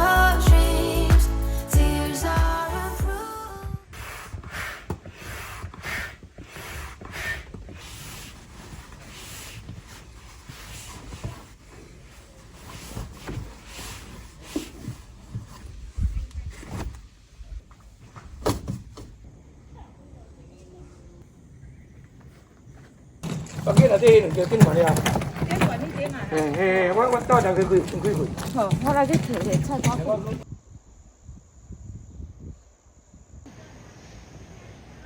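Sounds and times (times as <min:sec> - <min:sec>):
knocks and clacks of handling: 0:23.2 - 0:30.5.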